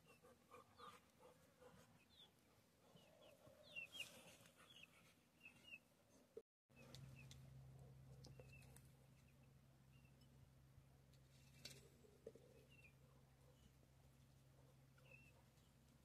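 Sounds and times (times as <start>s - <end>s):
faint low hum: 5.9s - 16.0s.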